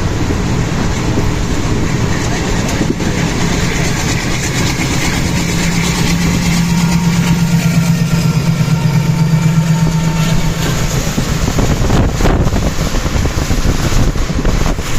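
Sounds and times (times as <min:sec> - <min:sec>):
goods train rumbling drone: 0:00.0 - 0:14.9
wind gusts on microphone: 0:08.2 - 0:14.9.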